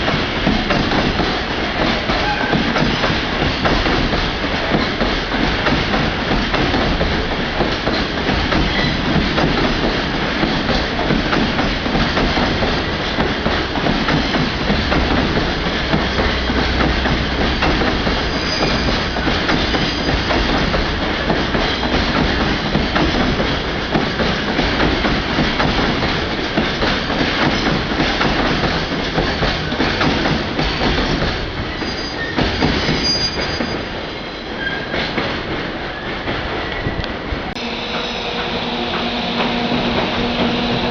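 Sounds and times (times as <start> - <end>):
train wheels and rail clatter: 0.0 - 40.9
high wheel squeals: 18.2 - 19.3, 31.7 - 35.0.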